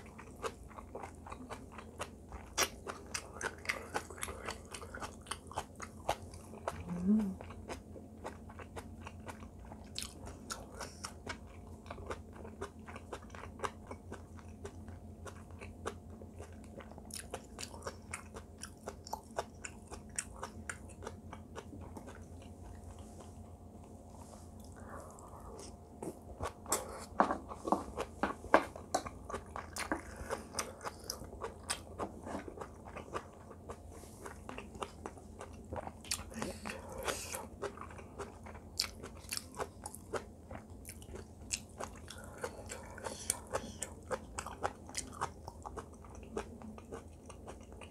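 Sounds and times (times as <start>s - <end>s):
faint low hum: 0.0s - 47.9s
person chewing food: 0.0s - 47.9s.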